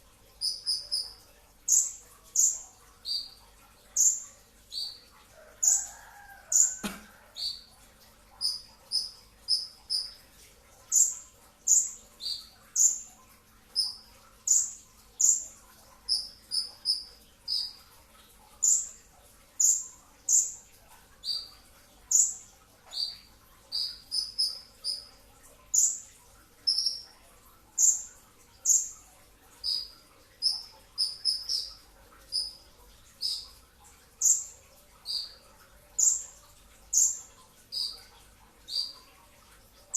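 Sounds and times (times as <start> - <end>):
sunbird chirping: 0.4 - 3.4, 8.4 - 10.2, 16.1 - 17.8, 22.1 - 25.1, 26.6 - 27.0, 29.6 - 32.6, 33.2 - 33.5, 34.2 - 35.4, 37.0 - 39.0.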